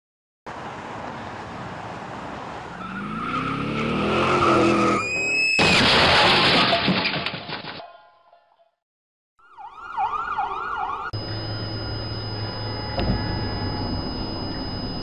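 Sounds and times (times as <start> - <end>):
road noise: 0.5 - 5.6, 9.8 - 15.0
tyre squeal: 2.8 - 5.8.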